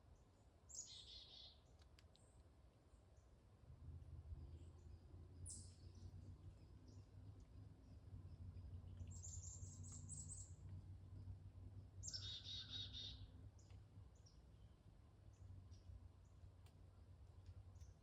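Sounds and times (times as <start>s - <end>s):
bird trill: 0.7s - 1.6s, 12.0s - 13.3s
songbird calls: 0.7s - 1.8s, 7.9s - 10.7s, 12.0s - 14.7s.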